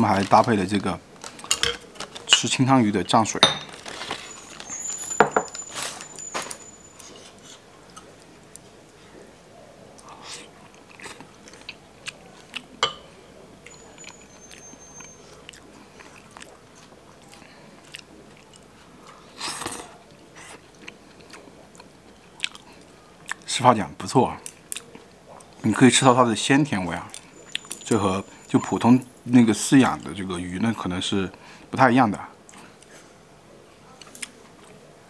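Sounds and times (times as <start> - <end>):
person chewing: 10.0 - 12.8, 14.0 - 23.5, 24.5 - 25.6.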